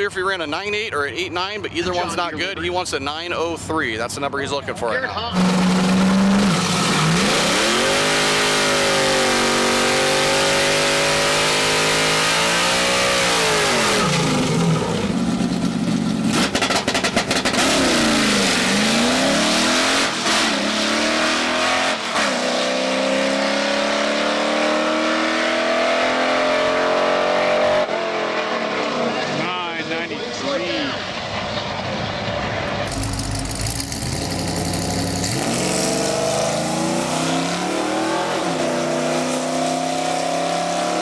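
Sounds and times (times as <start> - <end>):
race car engine revving: 5.3 - 29.5, 30.9 - 41.0.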